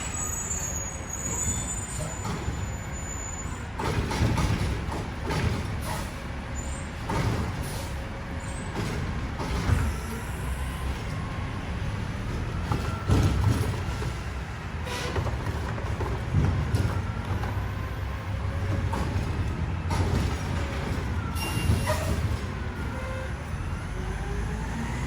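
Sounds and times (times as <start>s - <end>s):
garbage truck engine rumble: 0.0s - 25.0s.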